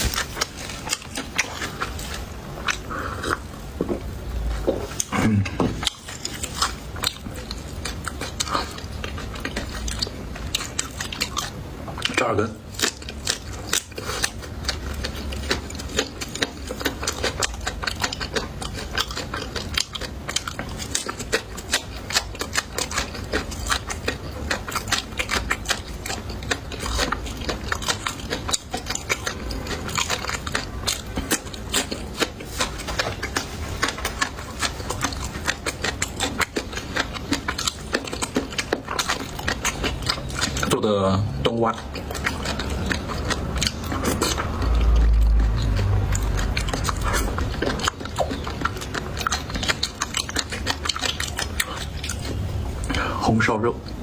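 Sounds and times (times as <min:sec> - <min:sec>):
person chewing crisp food: 0:00.0 - 0:54.0.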